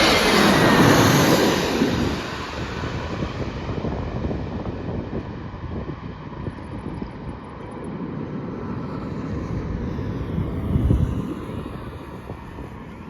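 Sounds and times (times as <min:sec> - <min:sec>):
airliner landing jet rumble: 0:00.0 - 0:13.0.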